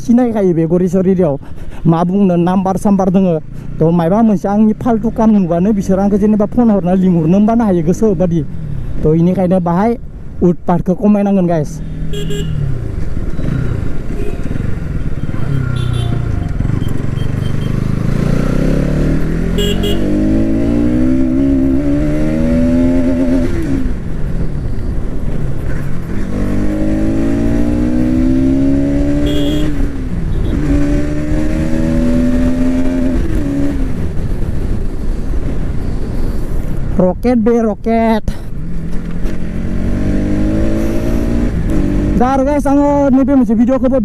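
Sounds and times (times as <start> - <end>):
motorcycle engine accelerating: 12.3 - 24.6, 25.3 - 34.8, 38.6 - 42.5.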